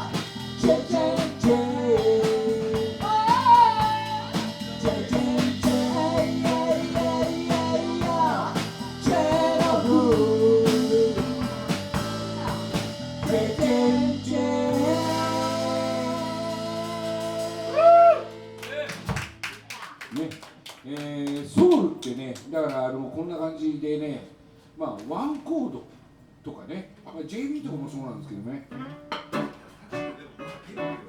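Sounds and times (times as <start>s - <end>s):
person singing: 0.0s - 18.4s
electric guitar: 0.0s - 19.4s, 28.8s - 31.0s
drum kit: 0.0s - 19.5s.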